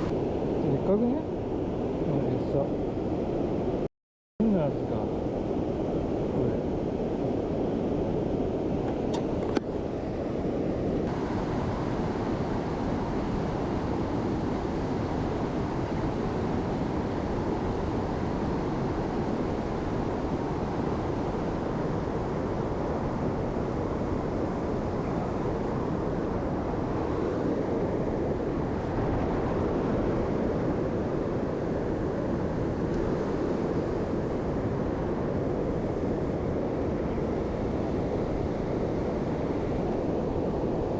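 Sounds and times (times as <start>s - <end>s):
stream rushing over rocks: 11.1s - 14.4s.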